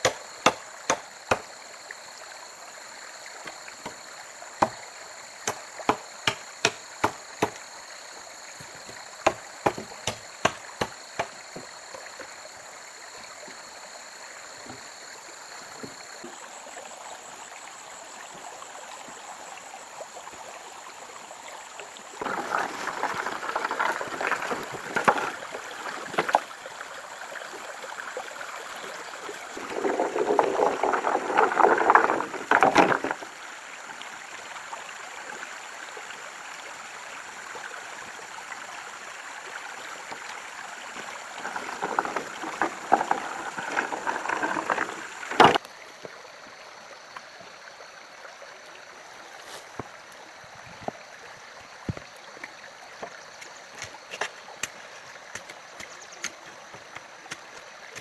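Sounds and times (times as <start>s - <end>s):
blade chopping wood: 0.0s - 1.5s, 4.6s - 4.8s, 5.4s - 7.6s, 8.6s - 11.7s, 44.4s - 45.6s
rustling scraping noise: 41.4s - 45.6s, 49.4s - 49.8s.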